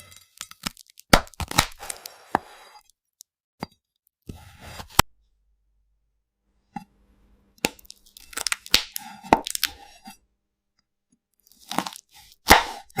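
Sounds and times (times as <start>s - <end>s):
knife crunching through fruit: 0.0s - 2.8s, 7.7s - 10.1s, 11.5s - 13.0s.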